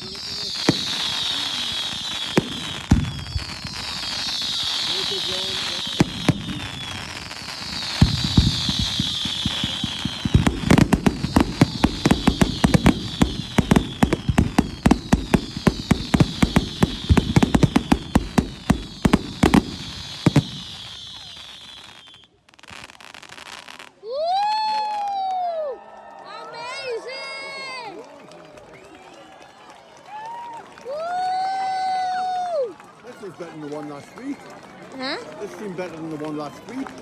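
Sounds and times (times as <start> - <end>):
firework falling hiss: 0.0 - 22.2
firework bangs: 0.0 - 23.9.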